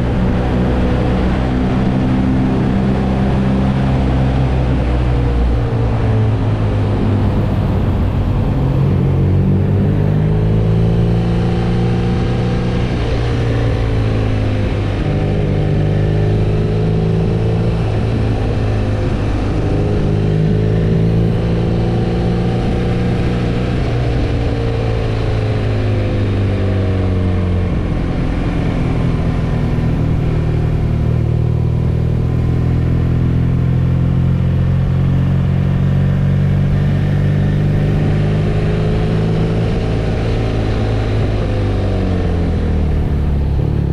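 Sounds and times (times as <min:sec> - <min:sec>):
motorcycle engine cruising: 0:00.0 - 0:43.9.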